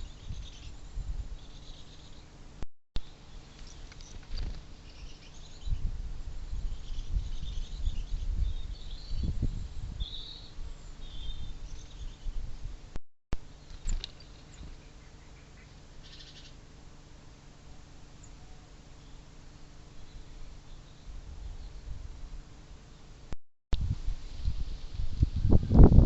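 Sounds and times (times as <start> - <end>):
small birds chirping: 0.0 - 2.3, 3.1 - 12.5, 13.5 - 16.6
low rumbling on microphone: 5.4 - 13.0, 23.8 - 26.0.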